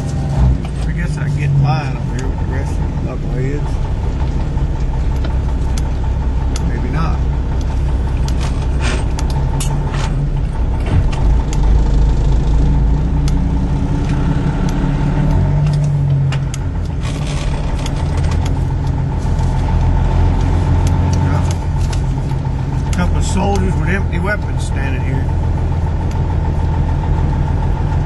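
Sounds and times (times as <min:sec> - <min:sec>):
vehicle engine and road noise: 0:00.0 - 0:28.0
clicks and rattles: 0:15.3 - 0:23.7.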